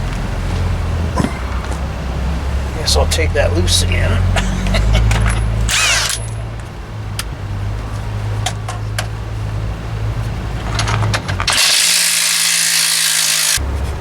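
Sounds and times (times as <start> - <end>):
hand tools clinking on metal: 4.5 - 6.6
power tool running: 5.7 - 6.4, 11.5 - 13.6.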